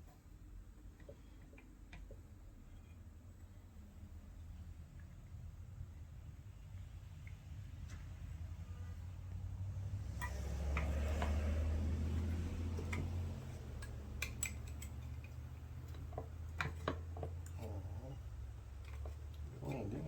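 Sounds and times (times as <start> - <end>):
steady low hum: 0.0 - 20.0
metal tools clinking: 12.2 - 17.0.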